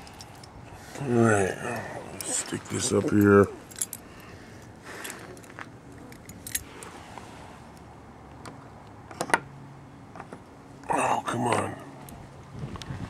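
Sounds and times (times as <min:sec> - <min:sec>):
keys jingling: 0:03.2 - 0:04.3, 0:05.0 - 0:06.9.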